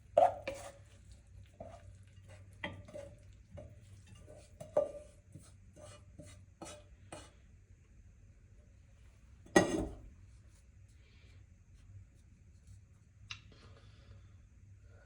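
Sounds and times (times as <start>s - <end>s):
spoon scraping and knocking a pan: 0.0s - 7.4s, 9.5s - 10.1s.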